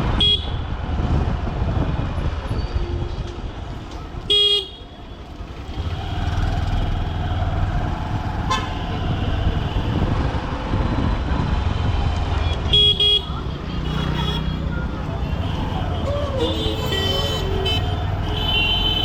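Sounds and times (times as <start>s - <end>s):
vehicle horn honk: 4.3s - 4.8s, 8.5s - 8.9s.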